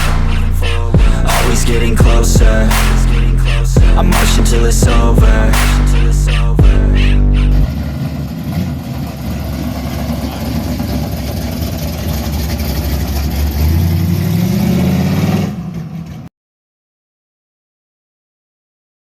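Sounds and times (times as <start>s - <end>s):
car engine revving: 0.0s - 16.2s.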